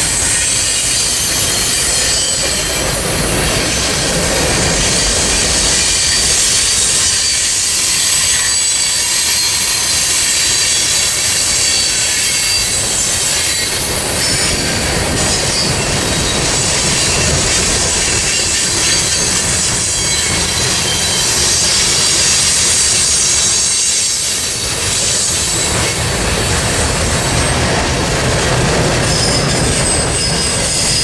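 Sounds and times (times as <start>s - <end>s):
train cars rumbling past: 0.0s - 31.0s
wheels squealing on rails: 0.0s - 31.0s.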